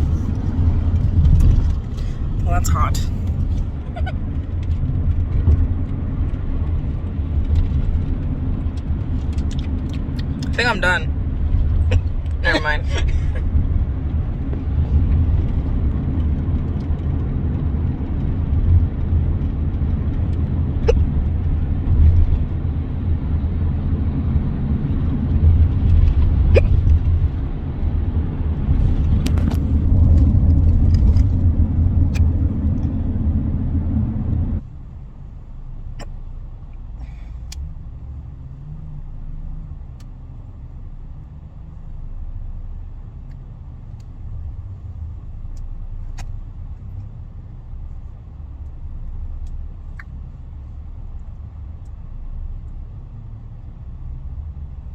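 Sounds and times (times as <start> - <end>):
car cabin rumble: 0.0 - 54.9
faint hiccups: 26.5 - 26.9.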